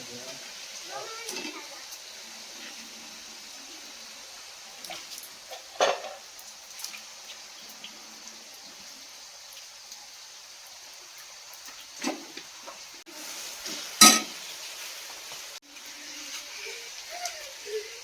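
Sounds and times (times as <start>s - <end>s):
metal utensil clattering on pot: 5.7s - 6.2s, 14.0s - 14.3s
steady hiss: 6.4s - 18.0s.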